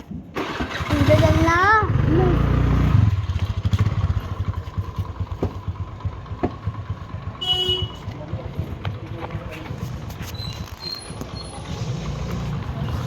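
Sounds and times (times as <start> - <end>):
scooter engine idling: 0.2 - 9.9.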